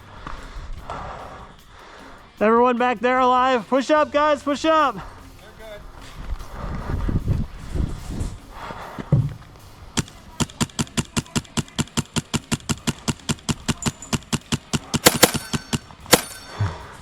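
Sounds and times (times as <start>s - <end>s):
sharp cracks: 9.4s - 16.8s
airsoft rifle rapid shots: 10.0s - 16.8s.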